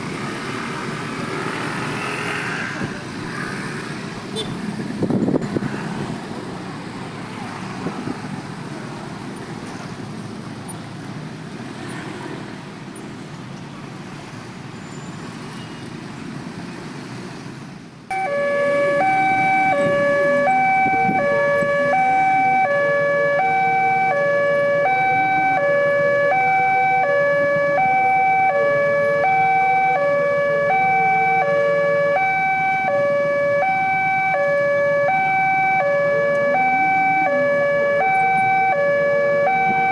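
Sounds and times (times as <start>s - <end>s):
road traffic: 0.0s - 39.9s
two-tone crossing warning alarm: 18.1s - 39.9s.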